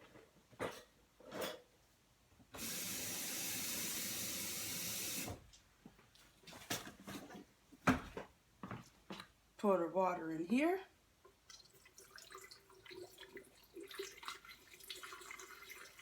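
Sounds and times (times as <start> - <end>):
kitchen tap running: 2.6 - 5.4, 11.5 - 16.0.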